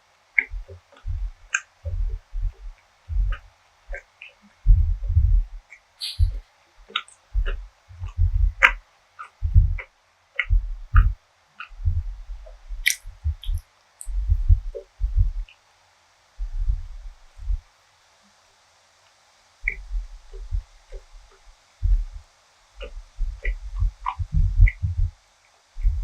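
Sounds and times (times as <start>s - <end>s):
wet mouth clicks: 6.0s - 11.7s, 12.8s - 14.2s.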